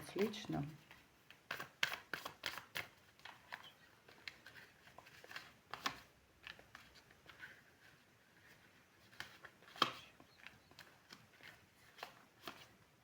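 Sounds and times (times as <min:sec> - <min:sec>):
cards clicking and flicking on table: 0:01.5 - 0:04.3, 0:09.1 - 0:10.0.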